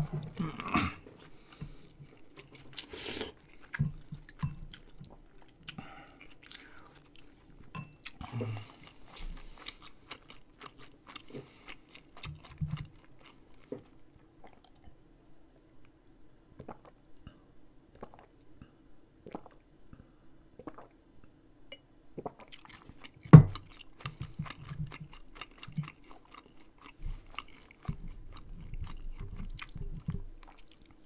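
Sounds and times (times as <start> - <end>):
person chewing: 0.0 - 14.8, 22.3 - 31.0.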